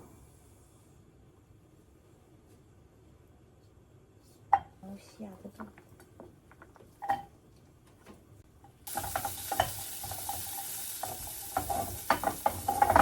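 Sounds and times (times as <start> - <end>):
food sizzling in hot oil: 8.8 - 13.0
utensil scraping in pan: 8.9 - 13.0.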